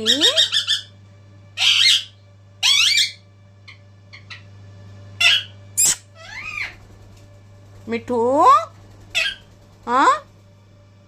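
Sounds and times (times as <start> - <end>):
parrot shrill calls: 0.0 - 1.0, 1.6 - 4.5, 5.2 - 6.8, 9.1 - 9.5.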